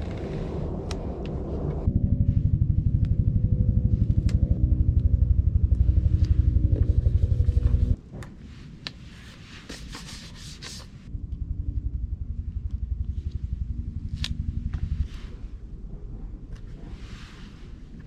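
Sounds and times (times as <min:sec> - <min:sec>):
engine idling: 0:01.9 - 0:08.0, 0:11.1 - 0:16.3.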